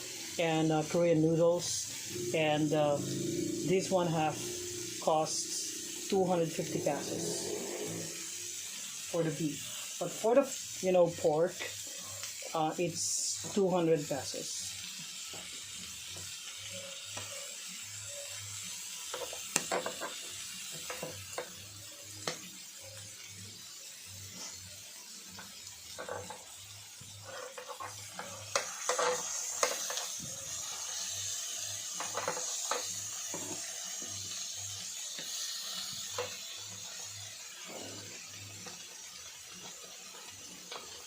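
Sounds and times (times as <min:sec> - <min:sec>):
meat sizzling on a grill pan: 0:00.0 - 0:41.0
utensils knocking against pan: 0:19.1 - 0:21.5, 0:32.0 - 0:33.6.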